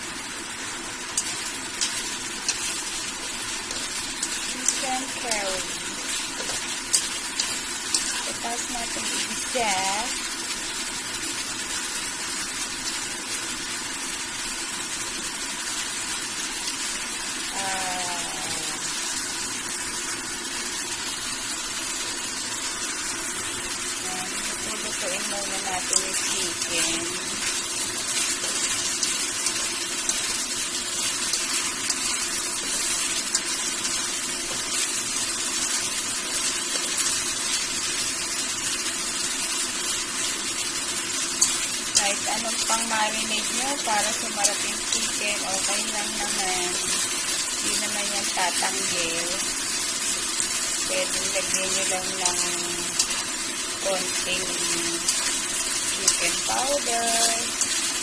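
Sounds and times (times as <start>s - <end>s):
chicken sizzling in a pan: 0.0s - 58.0s.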